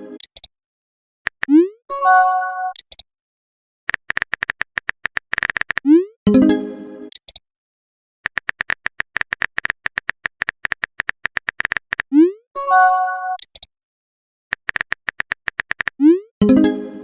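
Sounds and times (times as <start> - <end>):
keyboard tap clicks: 3.9 - 5.8, 8.3 - 12.0, 14.5 - 15.9
notification chime: 12.6 - 13.4.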